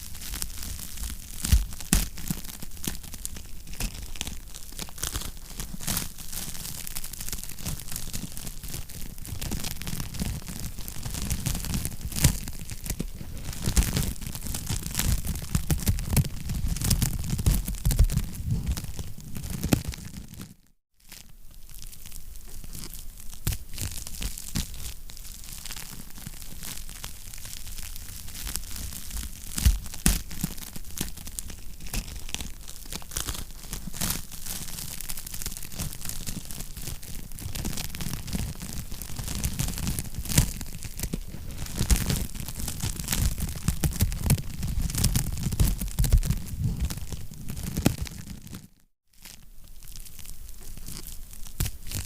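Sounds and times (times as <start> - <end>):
wood fire crackling: 4.1 - 20.5, 21.2 - 48.6.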